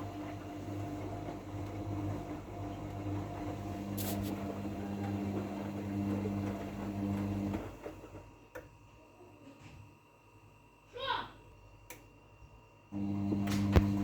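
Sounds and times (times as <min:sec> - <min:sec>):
washing machine humming: 0:00.0 - 0:08.9, 0:12.9 - 0:14.0.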